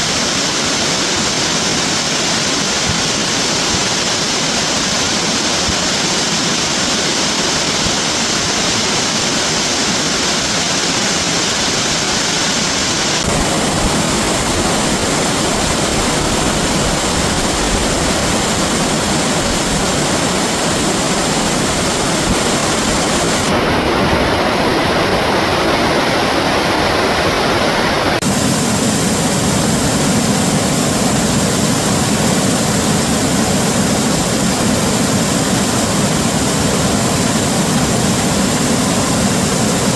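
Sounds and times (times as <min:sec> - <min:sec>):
reversed rushing water roar: 0:00.0 - 0:39.9.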